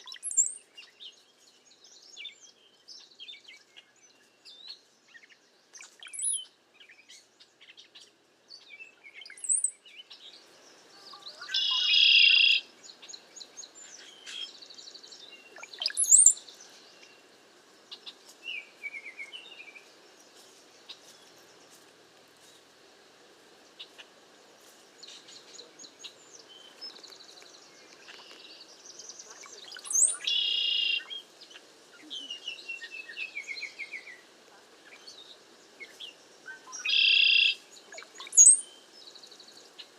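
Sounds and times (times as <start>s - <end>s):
bird chirps: 0.0s - 10.4s, 11.0s - 17.2s, 25.0s - 34.2s, 34.9s - 39.9s
descending bird chatters: 5.8s - 6.4s, 11.1s - 12.7s, 15.5s - 16.4s, 27.9s - 31.2s, 36.5s - 38.6s.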